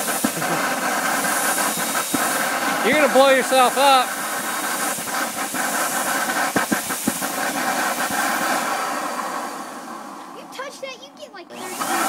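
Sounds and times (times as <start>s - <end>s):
sharp crackles: 0.0s - 8.8s
jet engine rushing hiss: 0.0s - 12.0s.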